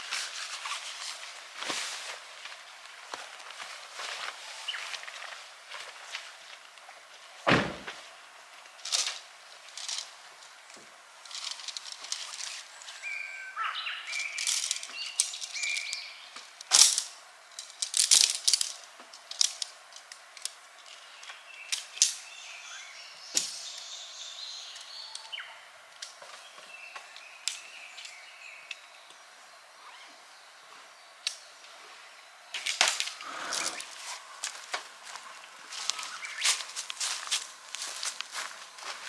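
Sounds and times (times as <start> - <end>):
bird chirps: 35.9 - 36.6.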